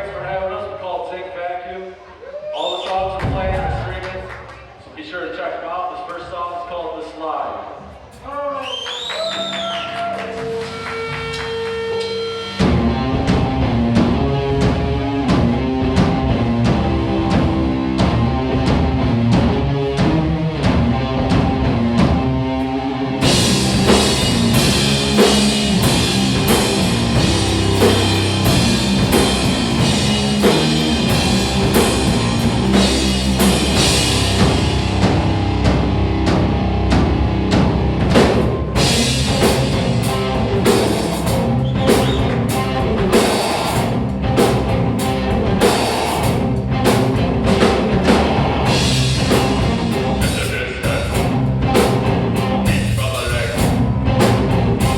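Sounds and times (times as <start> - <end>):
rock band playing: 9.0 - 54.9
electric guitar: 9.3 - 54.9
driving drum beat: 12.6 - 22.6, 23.2 - 54.9.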